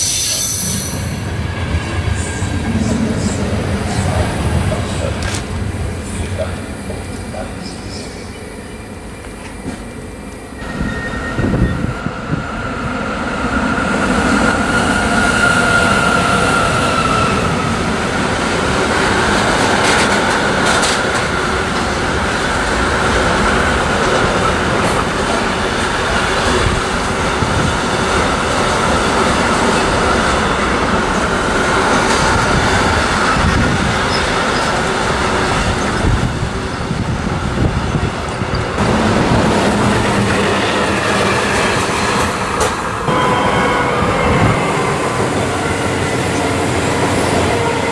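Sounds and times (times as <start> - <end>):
train wheels rolling on rails: 0.0 - 47.9
high wheel squeal: 10.6 - 12.0.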